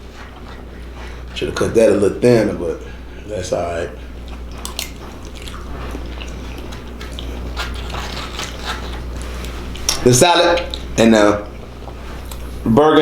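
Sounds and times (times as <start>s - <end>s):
man chewing crunchy food: 3.9s - 12.6s.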